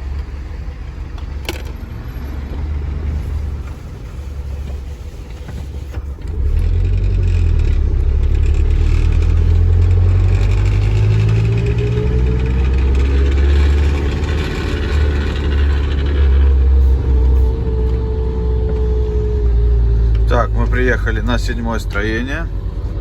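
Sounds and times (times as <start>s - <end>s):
truck engine running: 0.0s - 23.0s
rising whine: 6.3s - 22.0s.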